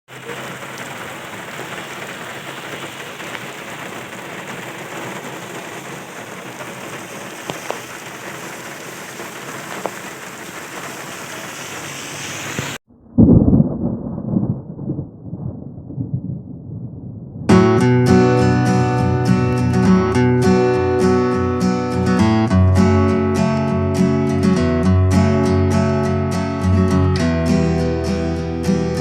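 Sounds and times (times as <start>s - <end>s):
heavy rain hiss: 0.1s - 12.8s.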